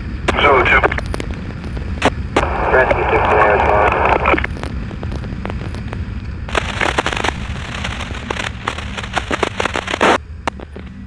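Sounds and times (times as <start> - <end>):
police scanner static crackling: 0.1 - 11.0
motorcycle engine rumbling: 4.5 - 11.0.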